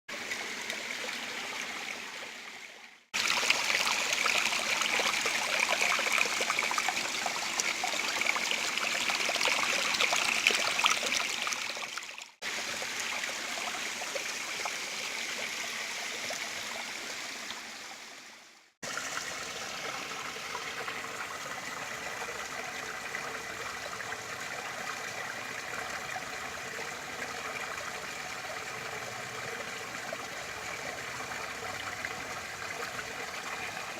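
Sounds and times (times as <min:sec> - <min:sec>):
water splashing down small waterfall: 0:03.2 - 0:17.5, 0:18.8 - 0:22.4.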